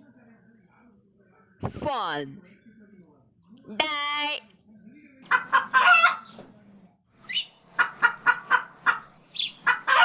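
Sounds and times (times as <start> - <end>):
bird calls: 7.2 - 10.0.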